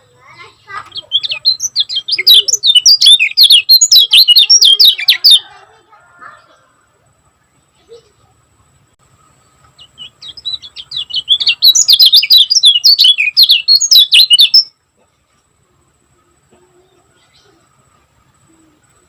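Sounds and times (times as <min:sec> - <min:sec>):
bird high chirping song: 0:00.0 - 0:05.7, 0:09.1 - 0:14.8.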